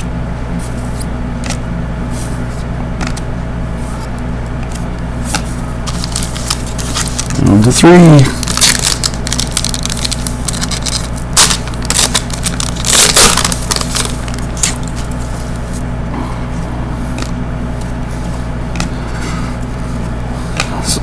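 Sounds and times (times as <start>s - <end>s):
low electrical hum: 0.0s - 21.0s
cards being handled: 0.6s - 15.9s
wrapper crinkling: 5.8s - 15.8s.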